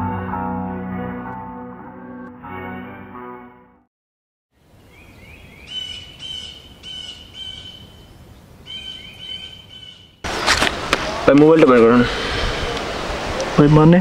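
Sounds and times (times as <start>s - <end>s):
steady outdoor hiss: 4.6s - 14.0s
bird chirping rising chirps: 4.7s - 10.2s.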